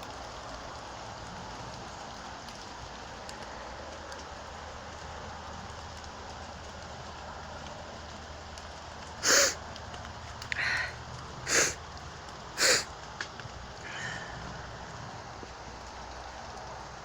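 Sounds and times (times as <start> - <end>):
heavy rain falling: 0.0 - 17.0
loud hissing bursts: 9.2 - 9.6, 10.6 - 11.8, 12.6 - 12.9.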